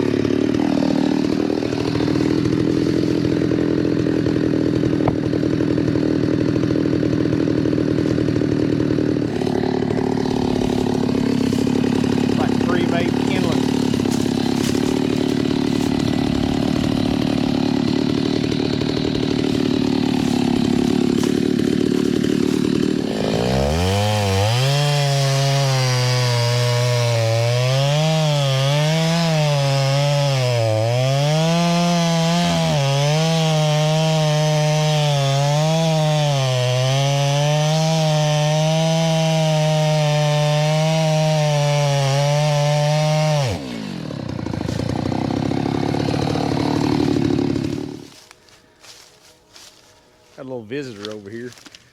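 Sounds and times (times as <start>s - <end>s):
chainsaw cutting a log: 0.0s - 50.4s.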